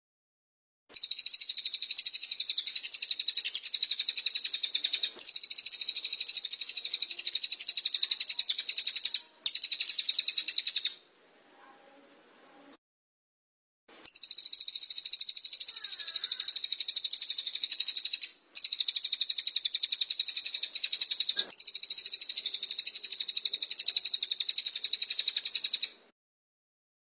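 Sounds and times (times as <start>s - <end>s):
songbird buzzing trill: 14.0s - 25.9s.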